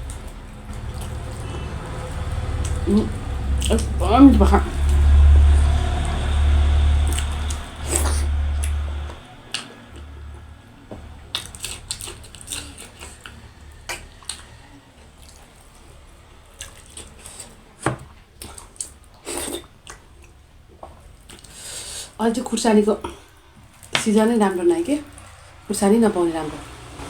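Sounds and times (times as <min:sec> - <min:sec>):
low steady rumble: 0:00.0 - 0:27.0
wet squishy mouth sounds: 0:07.0 - 0:17.7.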